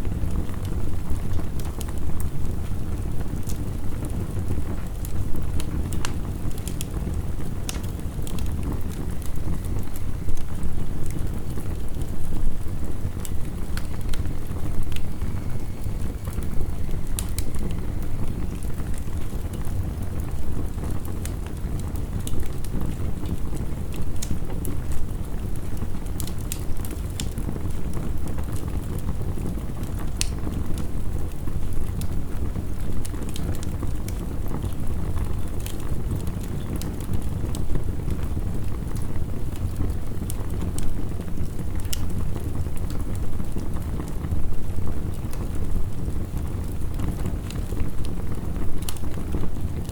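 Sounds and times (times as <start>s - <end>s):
wood fire crackling: 0.0s - 49.9s
heavy rain: 7.0s - 22.2s.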